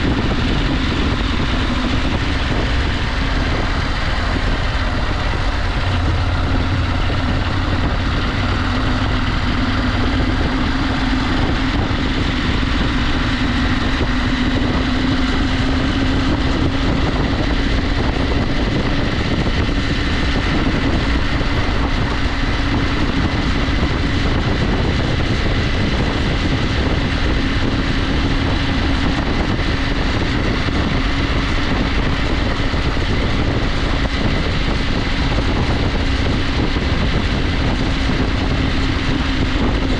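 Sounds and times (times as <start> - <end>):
motorcycle engine cruising: 0.0 - 39.9
wind and tyre noise: 0.0 - 39.9.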